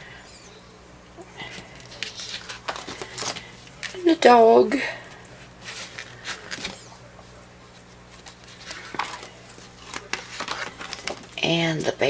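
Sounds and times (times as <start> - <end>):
paper page rustling: 1.8 - 4.0, 5.3 - 7.2, 7.8 - 11.4.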